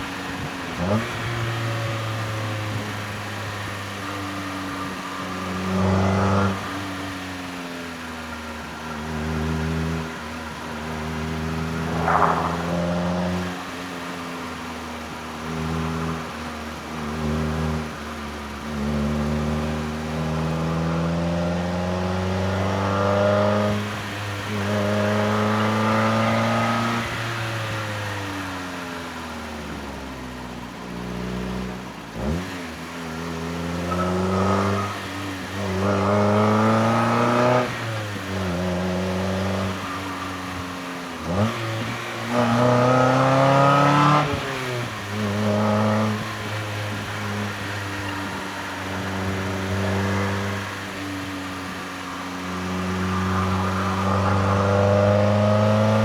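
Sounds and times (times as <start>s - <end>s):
car engine revving hard: 8.9s - 18.0s, 18.6s - 28.8s, 31.0s - 56.0s.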